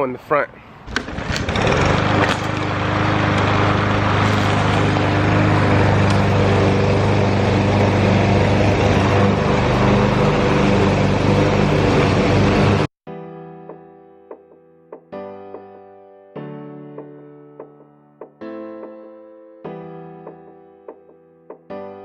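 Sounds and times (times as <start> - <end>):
push mower engine cutting grass: 0.8 - 12.9.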